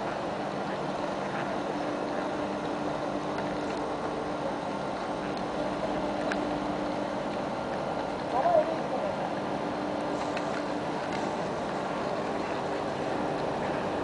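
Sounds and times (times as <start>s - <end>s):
train moving hum: 0.0s - 14.0s.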